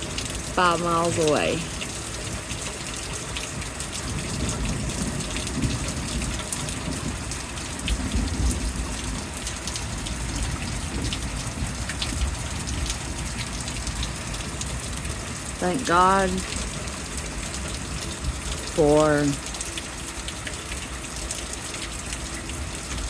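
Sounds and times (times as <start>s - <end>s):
heavy rain pouring: 0.0s - 23.0s
low thunder rumble: 4.0s - 15.5s.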